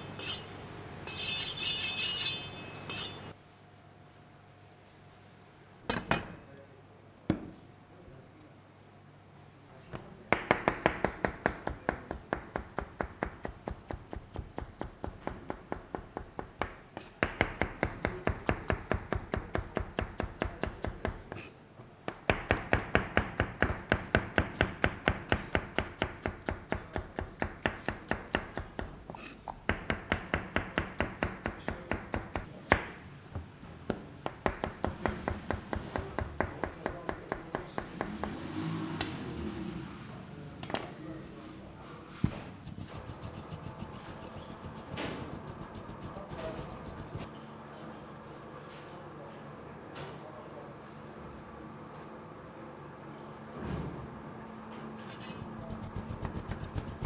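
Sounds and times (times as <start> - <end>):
knife chopping on cutting board: 10.0 - 21.5, 22.1 - 38.4, 42.2 - 47.3, 55.4 - 57.0.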